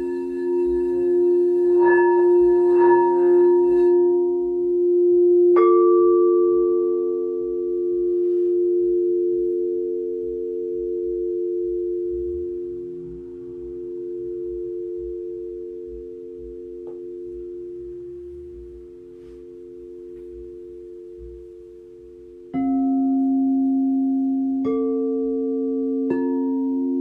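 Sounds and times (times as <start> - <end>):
singing bowl struck sharply: 0.0 - 4.8
singing bowls ringing: 0.0 - 27.0.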